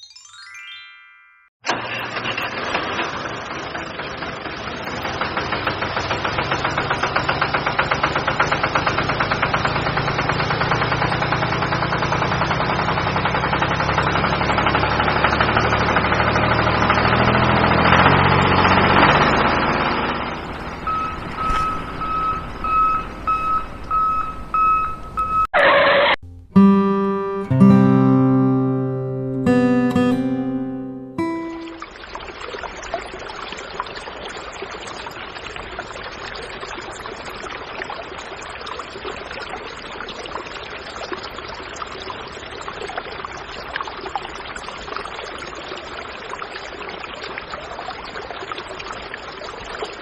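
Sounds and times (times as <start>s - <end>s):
engine running: 1.7s - 25.2s
repeating beeping tone: 31.0s - 31.8s.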